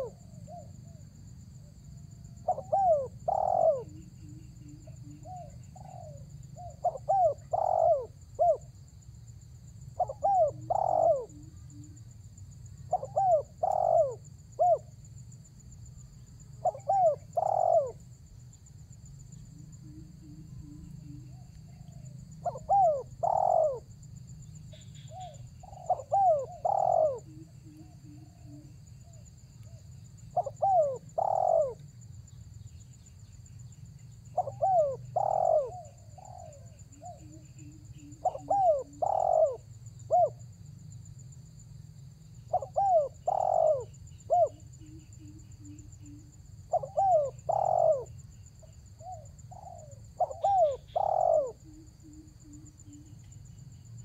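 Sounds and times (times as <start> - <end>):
dove cooing: 0.0 - 1.0, 2.2 - 8.7, 10.0 - 12.0, 12.9 - 14.9, 16.6 - 18.1, 19.7 - 24.0, 24.7 - 31.9, 34.3 - 40.4, 42.5 - 53.1.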